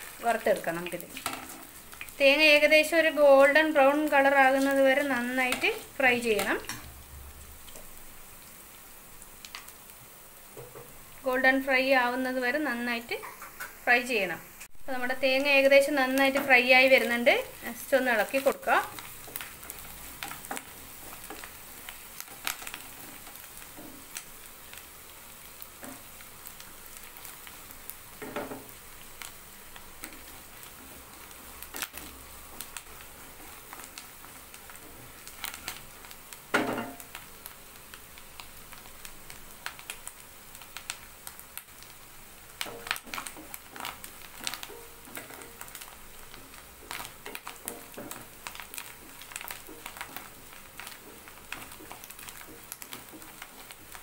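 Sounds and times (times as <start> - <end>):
food sizzling in oil: 0.0 - 54.0.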